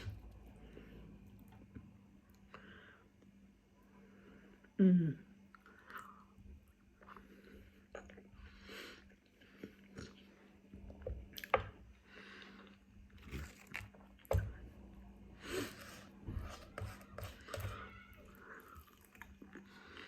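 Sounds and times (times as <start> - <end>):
person chewing crunchy food: 12.4 - 20.0.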